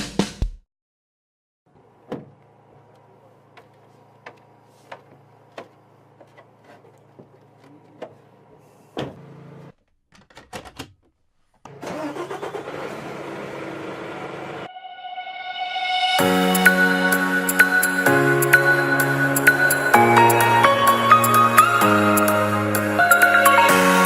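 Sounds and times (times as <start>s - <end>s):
vehicle engine humming: 16.3s - 24.0s.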